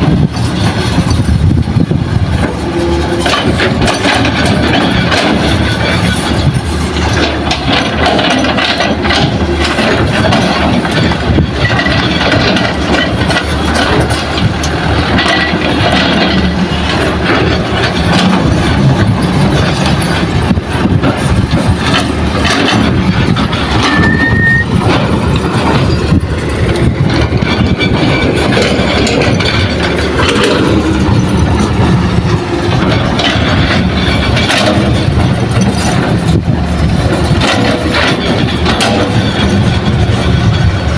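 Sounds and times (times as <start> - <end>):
diesel engines running: 0.0 - 40.9
scattered knocks: 0.0 - 40.9
brief high squeal: 23.9 - 24.7.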